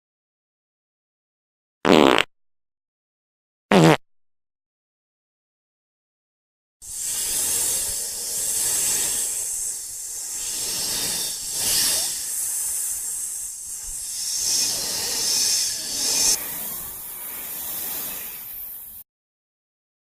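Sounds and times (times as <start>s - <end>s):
continuous high hiss: 6.9s - 19.0s.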